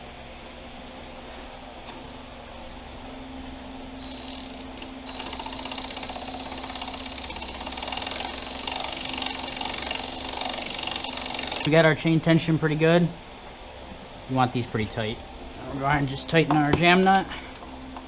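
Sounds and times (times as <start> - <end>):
ratchet wrench clicking: 4.0 - 11.7.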